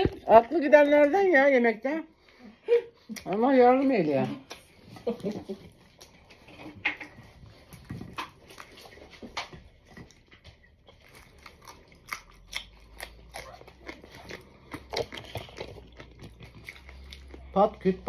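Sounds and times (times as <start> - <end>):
crunching raw pepper: 7.7 - 17.5.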